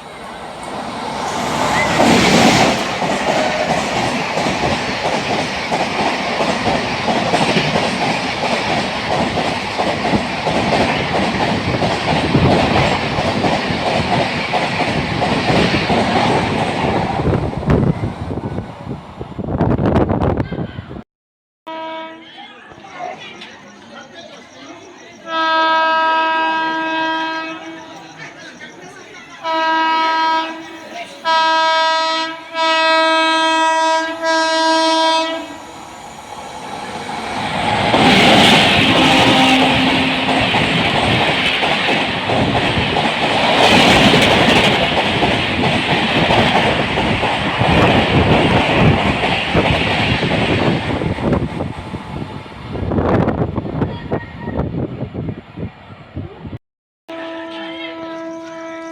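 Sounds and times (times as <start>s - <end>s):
train wheels clattering over rails: 0.2s - 17.3s, 35.7s - 52.3s
locomotive horn blasts: 21.7s - 22.3s, 25.3s - 27.8s, 29.4s - 30.6s, 31.2s - 35.6s, 38.8s - 40.8s, 57.1s - 58.9s.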